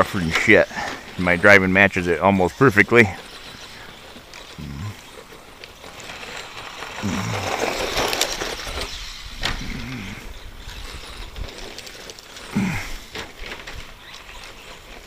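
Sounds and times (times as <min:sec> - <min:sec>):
rc truck motor running: 0:00.0 - 0:15.0
tyres on dirt: 0:00.0 - 0:15.0.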